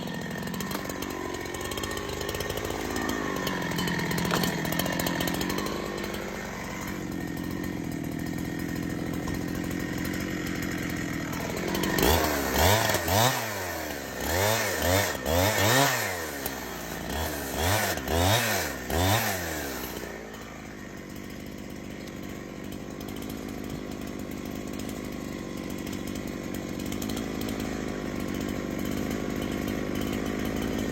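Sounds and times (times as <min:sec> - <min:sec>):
chainsaw engine revving: 0:00.0 - 0:30.9.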